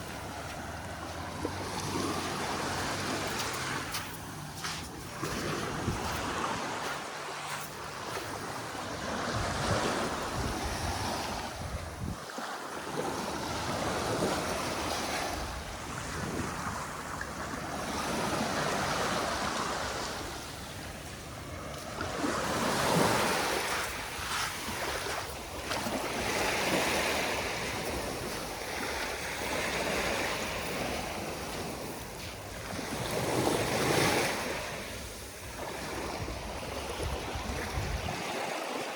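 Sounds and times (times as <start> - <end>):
sea waves washing onto beach: 0.0 - 38.9
wind buffeting microphone: 4.6 - 7.0, 8.1 - 12.2, 35.8 - 38.4.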